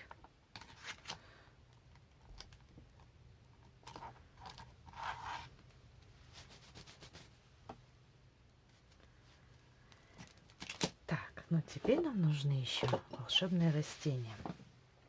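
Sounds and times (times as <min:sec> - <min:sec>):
plasticine scraping and clicking: 0:00.0 - 0:05.5.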